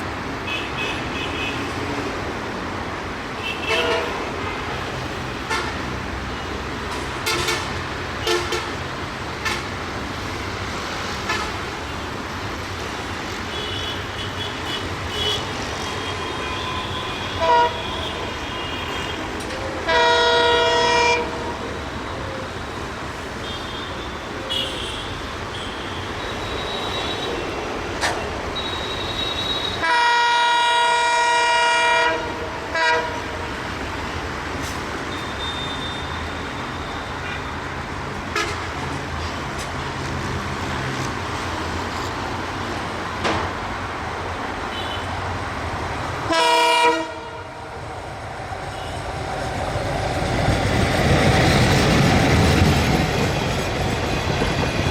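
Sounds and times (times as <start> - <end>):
train running noise: 0.0 - 54.9
diesel locomotive horn: 3.4 - 6.0, 6.9 - 8.8, 9.4 - 9.8, 11.2 - 11.7, 13.5 - 22.5, 23.4 - 34.2, 38.3 - 38.8, 46.1 - 47.8, 48.6 - 49.2.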